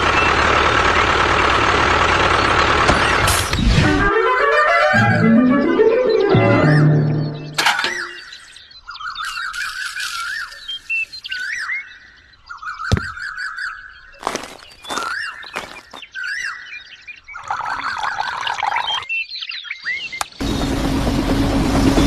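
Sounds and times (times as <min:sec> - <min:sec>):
birds chirping and singing: 0:04.9 - 0:20.7
sharp knocks: 0:12.9 - 0:13.2.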